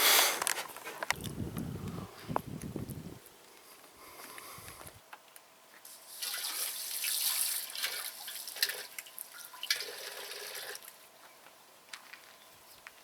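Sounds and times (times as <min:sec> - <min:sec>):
water running and splashing: 0:06.1 - 0:11.0.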